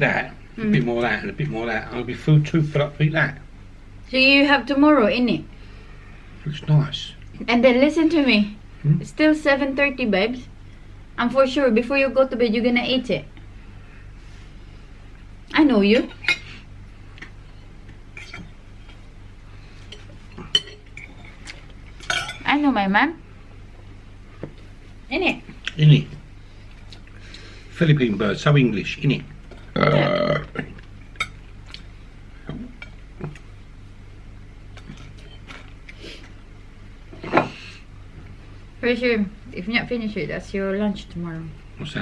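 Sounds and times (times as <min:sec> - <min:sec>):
cutlery clinking on dishes: 0:20.0 - 0:21.1, 0:22.0 - 0:22.5.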